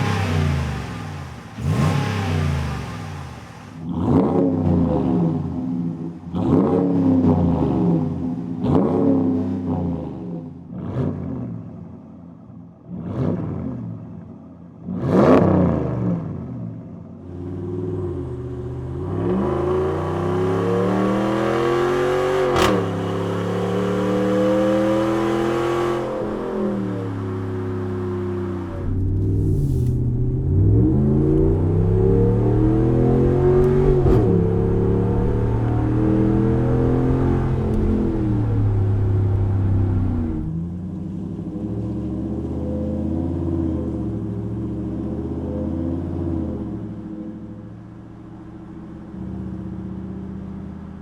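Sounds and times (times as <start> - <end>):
engine revving: 0.0 - 5.4, 17.6 - 40.6
truck accelerating: 0.0 - 8.2, 17.3 - 51.0.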